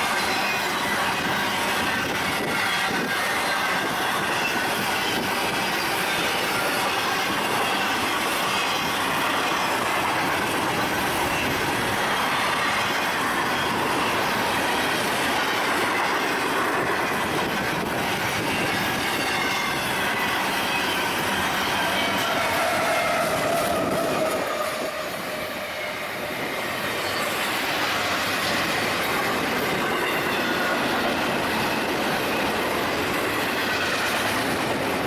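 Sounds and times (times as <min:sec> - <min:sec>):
train cars rolling past: 0:00.0 - 0:35.0
wheels squealing on rails: 0:00.0 - 0:35.0.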